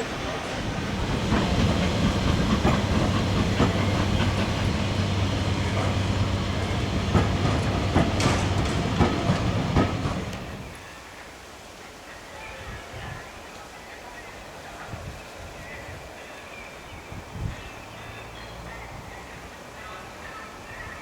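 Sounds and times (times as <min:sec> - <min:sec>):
train low drone: 0:00.0 - 0:10.8
wheels clicking over rail joints: 0:00.0 - 0:10.8.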